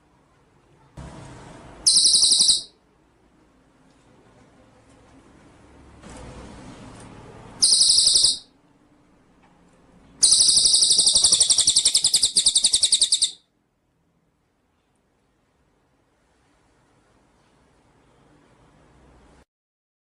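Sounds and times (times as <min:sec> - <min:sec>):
songbird trilling: 0:01.9 - 0:02.7, 0:07.6 - 0:08.5, 0:10.2 - 0:13.4.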